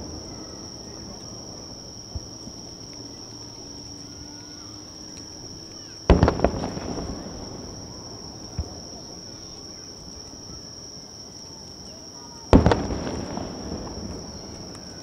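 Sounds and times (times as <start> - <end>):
high-pitched insect trill: 0.0 - 15.0
sharp firework cracks: 5.2 - 9.7, 12.5 - 15.0
firework shell booming: 6.0 - 9.7, 12.5 - 15.0
small firework bang: 6.1 - 9.7, 12.5 - 15.0.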